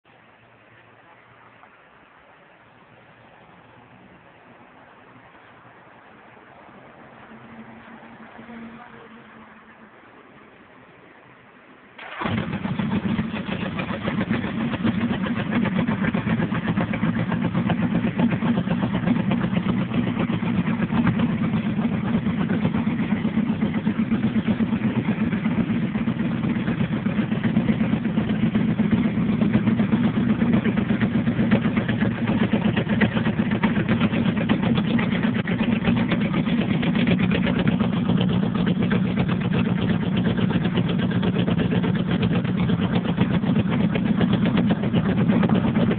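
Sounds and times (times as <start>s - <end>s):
motorcycle engine idling: 12.0s - 45.9s.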